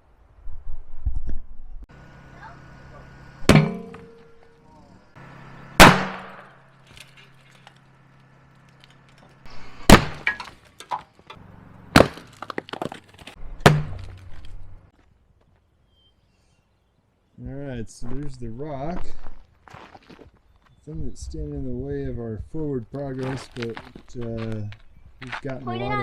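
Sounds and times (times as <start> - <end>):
blasting bangs in rock: 5.8 - 6.5.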